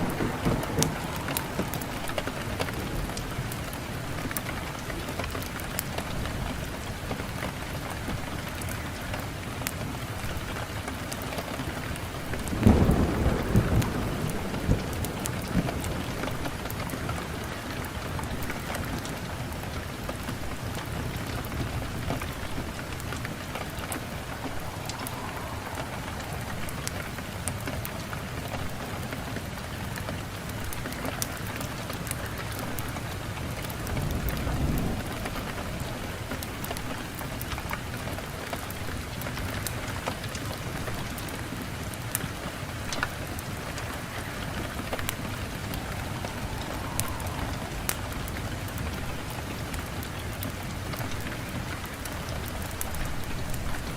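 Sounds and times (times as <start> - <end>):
low rush: 0.0 - 5.1, 21.2 - 29.2, 43.2 - 50.8
hissing flames: 0.0 - 53.9.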